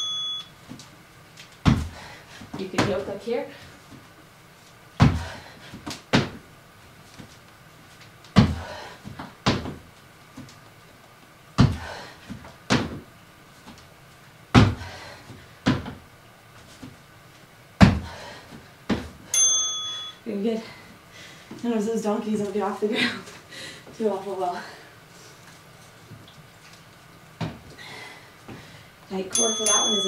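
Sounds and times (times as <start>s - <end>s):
thuds of landing on exercise mat: 1.6s - 2.0s, 5.0s - 6.4s, 8.3s - 9.8s, 11.6s - 13.0s, 14.5s - 14.9s, 15.6s - 16.0s, 17.8s - 18.2s, 27.4s - 27.7s.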